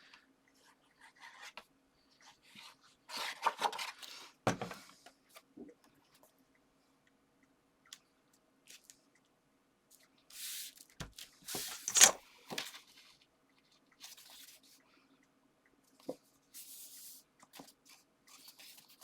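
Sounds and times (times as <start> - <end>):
paper rustling: 10.4 - 12.8
paper scraping and tearing: 11.5 - 12.2.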